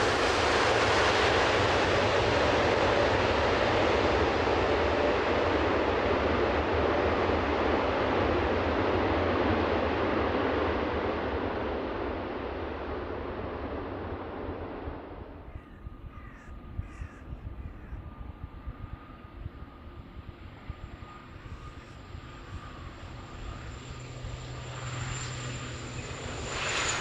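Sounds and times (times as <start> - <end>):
jet airliner noise: 0.0 - 27.0
crows cawing: 15.5 - 18.1.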